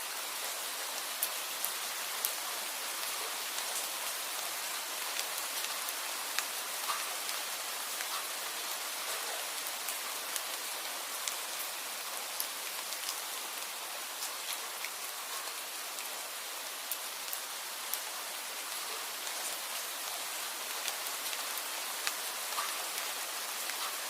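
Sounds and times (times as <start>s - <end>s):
steady rain hiss: 0.0s - 24.0s
raindrops ticking: 5.0s - 11.6s, 18.7s - 24.0s.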